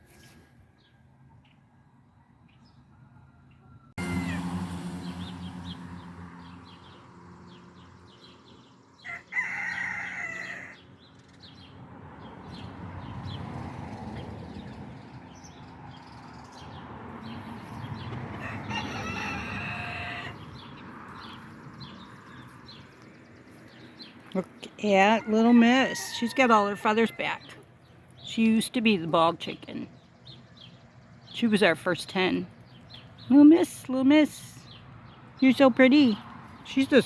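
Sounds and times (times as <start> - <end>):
rooster crowing: 2.9 - 4.6, 9.0 - 10.8, 18.3 - 20.4, 25.1 - 27.2.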